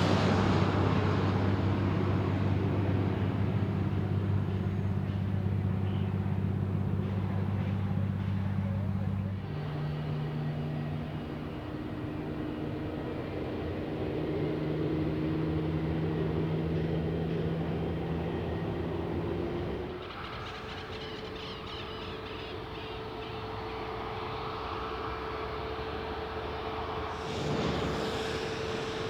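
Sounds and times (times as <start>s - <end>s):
jet engines droning: 0.0s - 29.0s.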